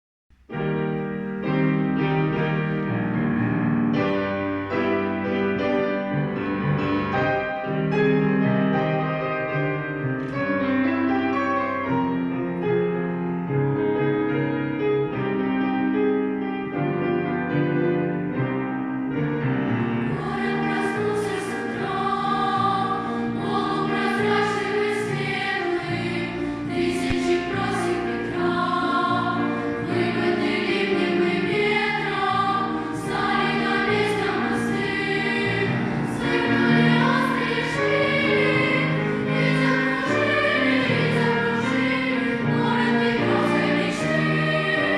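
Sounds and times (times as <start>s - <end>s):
piano playing: 0.3s - 44.9s
choir singing: 19.8s - 44.9s.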